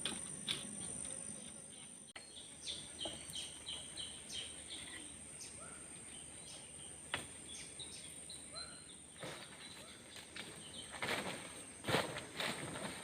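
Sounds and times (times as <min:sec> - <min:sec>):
bird chirping: 0:01.2 - 0:11.0.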